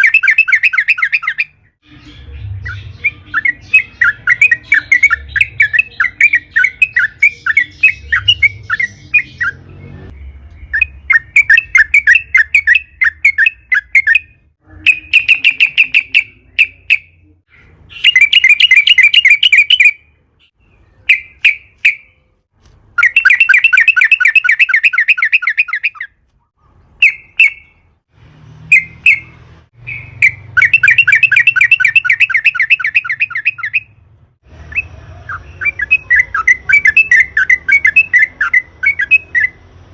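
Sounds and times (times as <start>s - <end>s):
bird singing chattering rolls: 0.0s - 22.2s, 23.0s - 26.2s, 28.7s - 34.0s, 34.6s - 39.6s.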